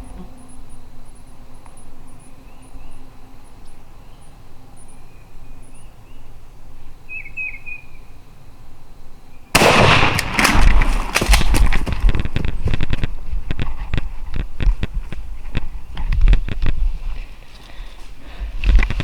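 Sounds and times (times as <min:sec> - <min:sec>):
small birds chirping: 0:00.0 - 0:08.4, 0:15.2 - 0:19.0.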